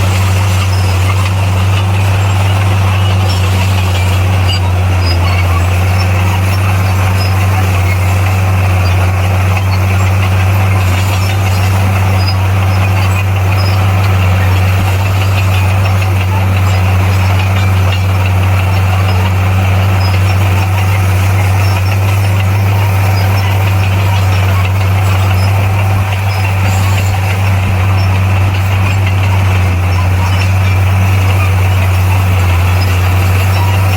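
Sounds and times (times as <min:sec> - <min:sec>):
bulldozer diesel engine running: 0:00.0 - 0:33.9.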